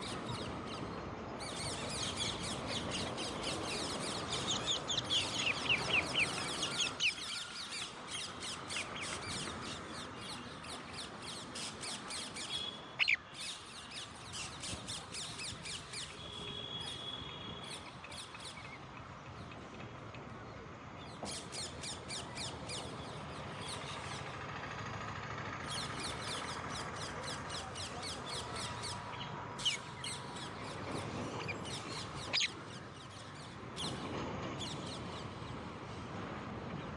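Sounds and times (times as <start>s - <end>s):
parakeets chattering: 12.3s - 13.2s, 31.4s - 32.6s
parakeet squawks: 13.0s - 13.2s, 32.2s - 32.6s.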